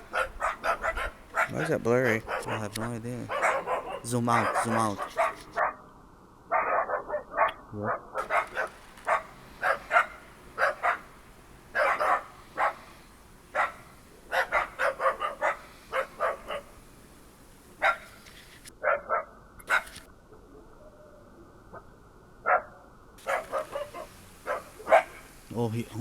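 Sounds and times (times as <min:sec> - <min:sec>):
dogs barking: 0:00.0 - 0:05.8, 0:06.5 - 0:16.8, 0:17.8 - 0:18.1, 0:18.8 - 0:20.0, 0:22.4 - 0:25.3.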